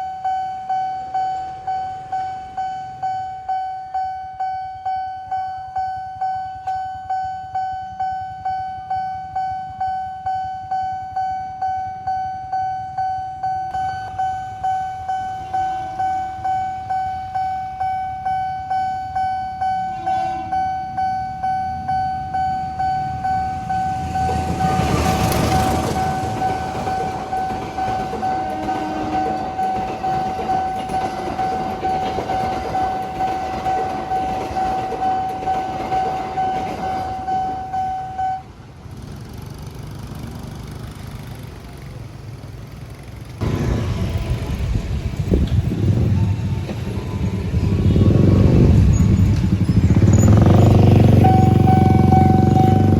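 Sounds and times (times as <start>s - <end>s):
level crossing alarm dinging: 0.0s - 38.6s, 50.0s - 52.9s
road traffic: 0.0s - 52.9s
train rumbling: 10.7s - 52.9s
motorcycles moving off: 38.9s - 52.9s.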